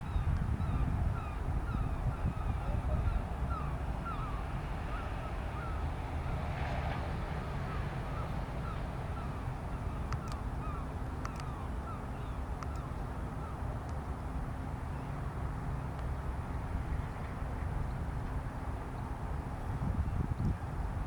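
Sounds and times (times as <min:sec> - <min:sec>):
sharp clicks: 0:11.2 - 0:11.5.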